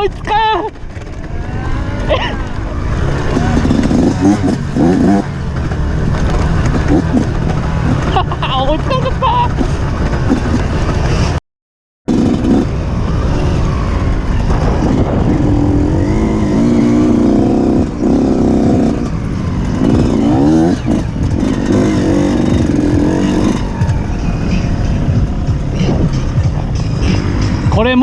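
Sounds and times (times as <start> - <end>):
motorcycle engine revving: 0.0 - 11.4, 12.1 - 28.0.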